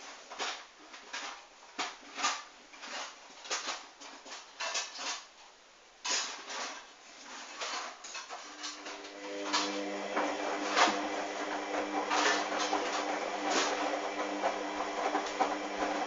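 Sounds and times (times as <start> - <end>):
washing machine tumbling: 8.7 - 16.0.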